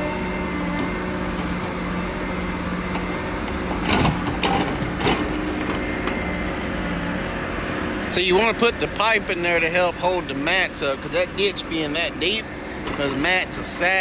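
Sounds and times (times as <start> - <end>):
diesel engine running: 0.0 - 14.0
metal knocks or clanks: 3.6 - 5.8.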